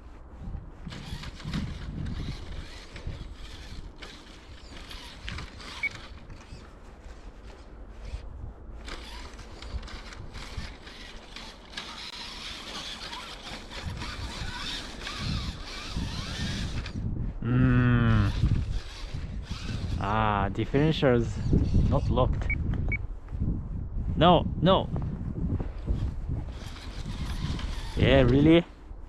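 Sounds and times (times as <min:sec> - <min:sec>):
toy truck motor whirring: 0:00.9 - 0:06.7, 0:08.8 - 0:17.0, 0:18.0 - 0:20.3, 0:20.9 - 0:22.1, 0:25.8 - 0:28.5.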